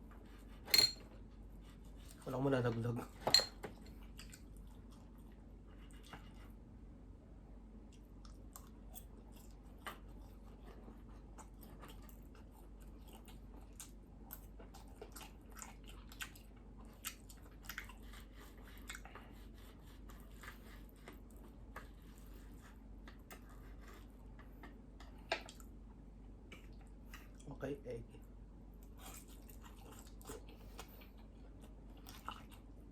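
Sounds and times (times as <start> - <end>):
chewing and biting food: 3.8 - 6.3, 7.8 - 25.8, 28.8 - 32.9.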